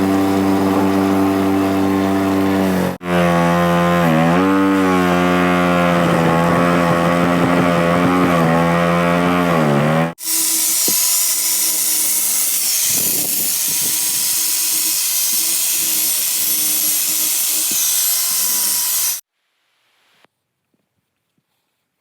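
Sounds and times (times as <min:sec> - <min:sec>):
workshop tool hissing: 0:10.2 - 0:19.2.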